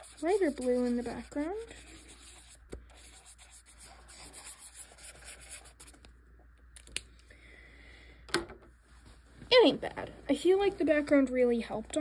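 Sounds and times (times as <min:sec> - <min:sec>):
drawing tool scratching on paper: 0:00.0 - 0:05.9.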